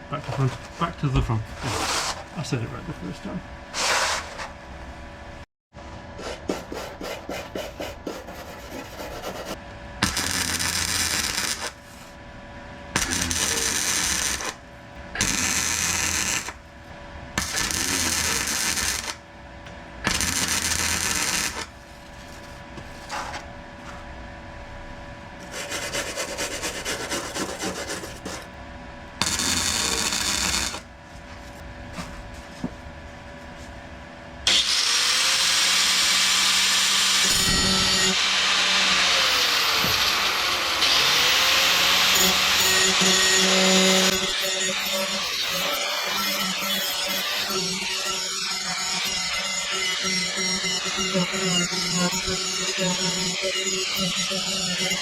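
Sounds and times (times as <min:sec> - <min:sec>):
welding arc crackling: 0:10.0 - 0:11.8, 0:13.0 - 0:14.6, 0:15.2 - 0:16.6, 0:17.4 - 0:19.2, 0:20.1 - 0:21.7.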